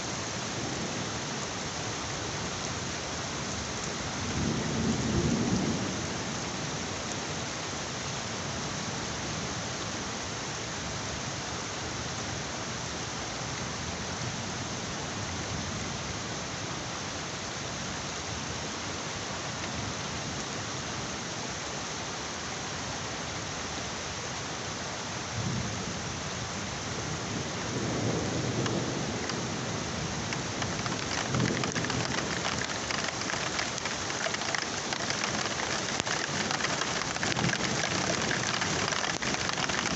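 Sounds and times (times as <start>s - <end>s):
heavy rain: 0.0s - 39.9s
thunder rolling: 30.2s - 39.9s.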